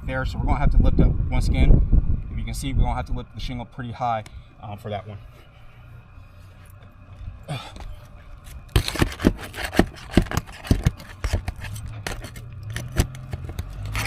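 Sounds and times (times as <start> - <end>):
roof shingle being pried up: 8.4 - 14.0.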